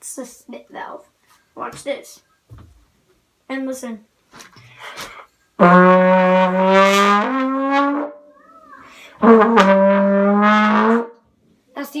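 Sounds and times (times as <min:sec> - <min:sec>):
trombone notes: 0:05.6 - 0:08.2, 0:09.2 - 0:11.2.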